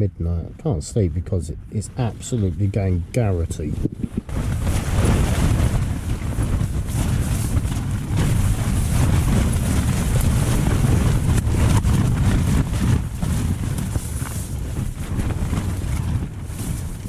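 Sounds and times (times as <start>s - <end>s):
gusty wind on microphone: 0.0s - 17.0s
tent fabric flapping: 3.3s - 17.0s.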